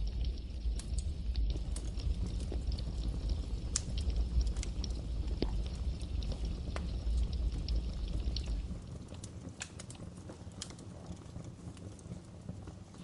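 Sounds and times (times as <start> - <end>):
low rumble: 0.0 - 8.9
wood fire crackling and popping: 0.0 - 13.0.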